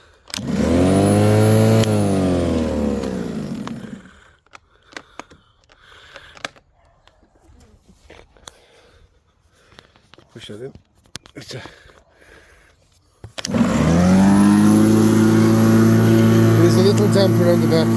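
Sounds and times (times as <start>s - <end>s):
electric lawnmower motor spinning: 0.3s - 4.1s, 13.4s - 17.9s.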